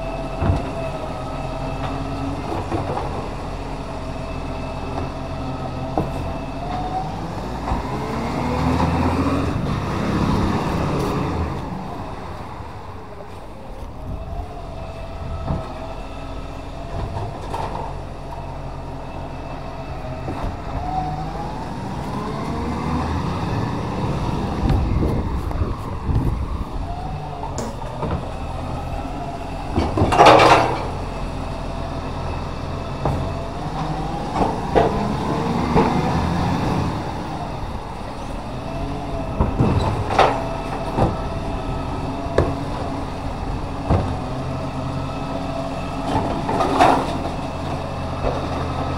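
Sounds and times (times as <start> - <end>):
recycling truck engine running: 0.0 - 48.9.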